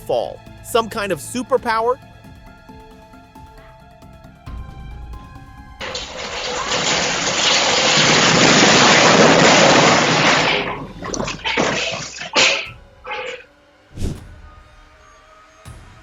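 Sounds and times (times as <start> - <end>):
snow sliding down a roof: 5.8 - 10.8.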